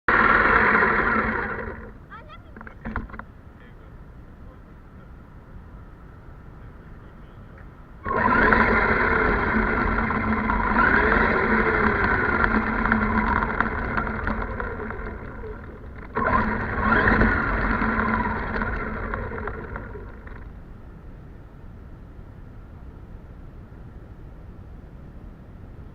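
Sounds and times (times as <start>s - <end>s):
toy truck electric motor whining: 0.1s - 2.0s, 8.0s - 20.5s.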